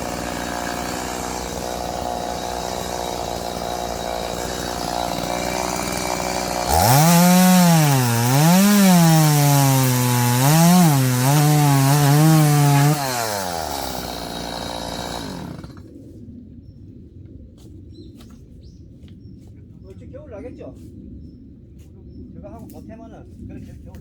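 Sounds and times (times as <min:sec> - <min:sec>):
chainsaw cutting logs: 0:00.0 - 0:15.9.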